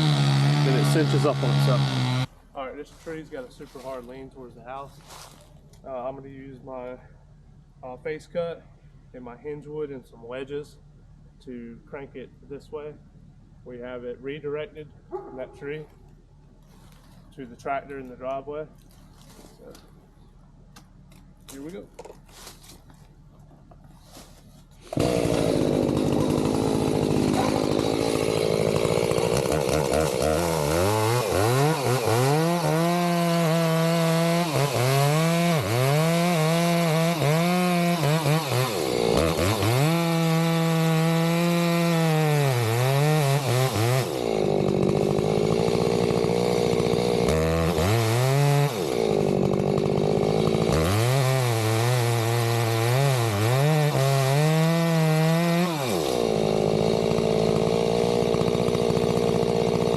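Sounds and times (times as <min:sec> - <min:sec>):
chainsaw cutting wood: 0:00.0 - 0:02.3, 0:24.1 - 0:59.9.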